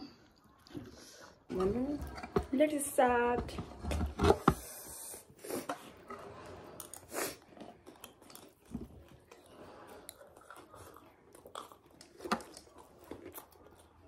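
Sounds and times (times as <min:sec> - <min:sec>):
chewing crunchy snack: 0:06.7 - 0:14.0.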